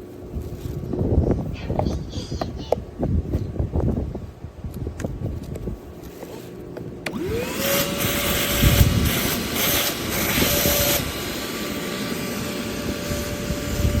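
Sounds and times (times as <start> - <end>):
shop vacuum motor whine: 7.0 - 14.0
rushing air: 7.1 - 14.0.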